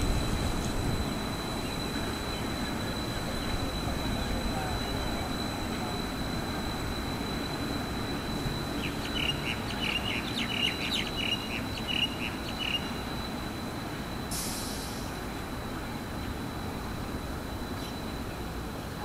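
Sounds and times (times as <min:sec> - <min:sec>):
distant traffic and rail rumble: 0:00.0 - 0:19.0
small bird chirping: 0:08.7 - 0:13.0.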